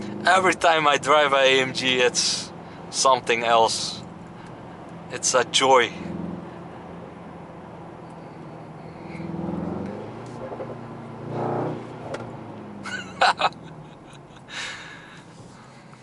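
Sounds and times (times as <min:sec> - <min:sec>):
car engine heard from cabin: 0:00.0 - 0:16.0
exhaust cracks: 0:07.9 - 0:16.0.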